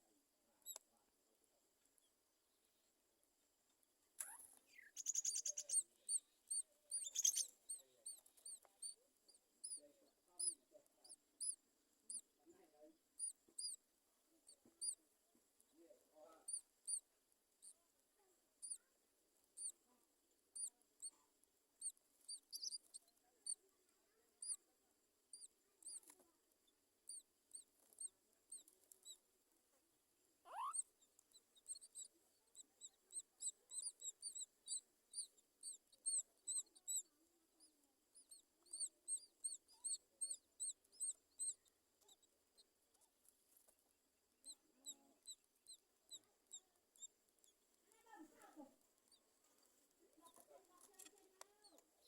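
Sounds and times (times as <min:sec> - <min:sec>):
nestling birds begging peeps: 0:04.2 - 0:09.0, 0:30.5 - 0:37.0.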